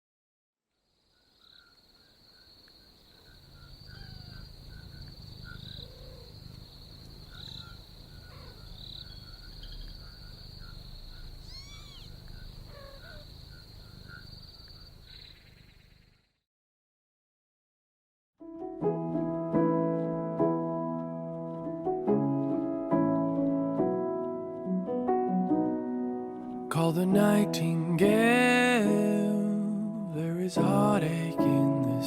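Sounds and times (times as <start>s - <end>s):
insects chirring: 0.8s - 16.4s
pulsing insect chirp: 0.8s - 16.4s
bird chirps with falling pitch: 7.3s - 16.0s.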